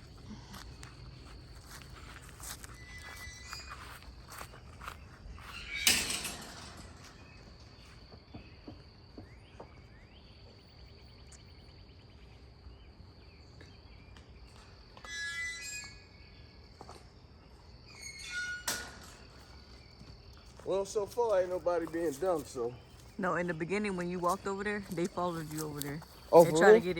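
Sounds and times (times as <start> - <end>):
high insect trill: 0.0 - 8.4, 14.8 - 26.9.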